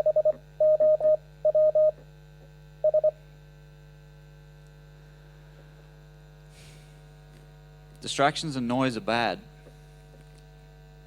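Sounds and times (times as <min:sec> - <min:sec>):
morse code beeps: 0:00.0 - 0:02.0, 0:02.8 - 0:03.2
electrical mains hum: 0:00.0 - 0:11.0.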